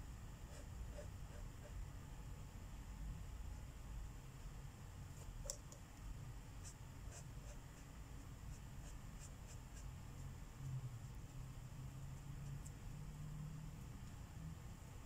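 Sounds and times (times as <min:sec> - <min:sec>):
low room hum: 0:00.0 - 0:15.0
marker scratching on paper: 0:00.5 - 0:01.8, 0:06.6 - 0:07.9, 0:08.5 - 0:10.4.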